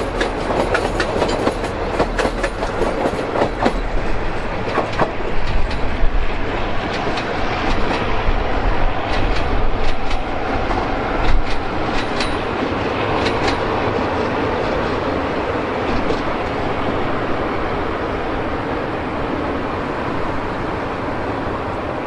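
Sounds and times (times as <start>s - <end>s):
wheel clacks over rail joints: 0.0s - 6.2s, 9.0s - 13.8s, 15.8s - 16.5s
train coaches rolling past: 0.0s - 22.0s.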